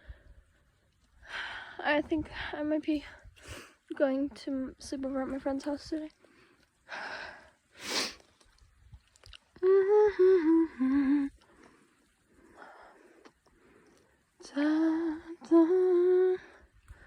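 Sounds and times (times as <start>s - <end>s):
woman humming a tune: 9.6s - 11.4s, 14.4s - 16.6s.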